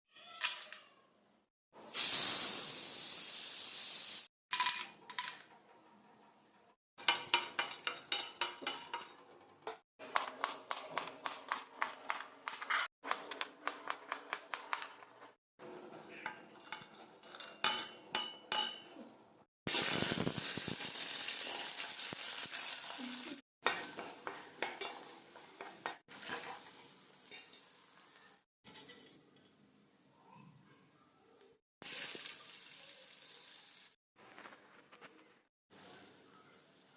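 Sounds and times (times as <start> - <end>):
food sizzling in hot oil: 1.8 - 4.3, 19.7 - 28.5, 31.8 - 34.0
metal utensil scraping pan: 7.0 - 10.6, 23.6 - 27.6.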